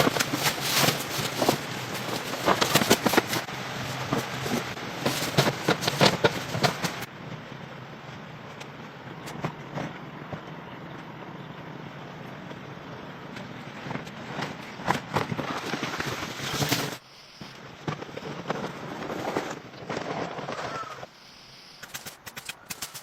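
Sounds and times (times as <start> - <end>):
scattered knocks and clicks: 0.0 - 7.1, 21.8 - 23.0
steady background hiss: 16.7 - 17.9.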